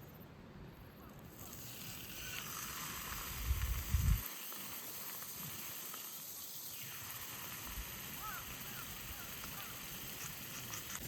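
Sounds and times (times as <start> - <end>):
small wood fire hissing: 1.2 - 11.0.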